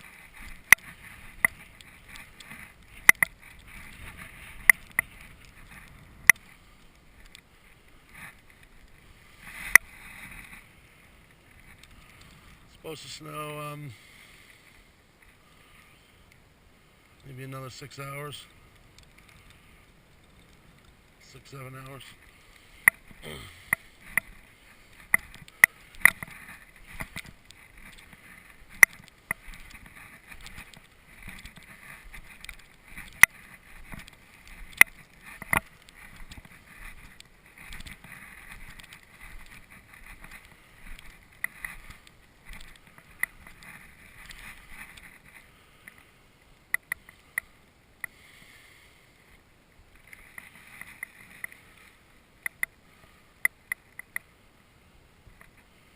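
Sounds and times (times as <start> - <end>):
sharp clicks: 1.4 - 3.4.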